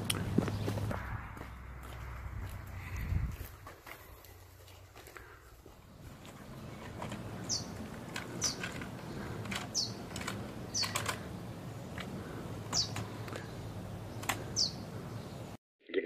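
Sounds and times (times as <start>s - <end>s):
bird chirping: 6.6s - 15.6s.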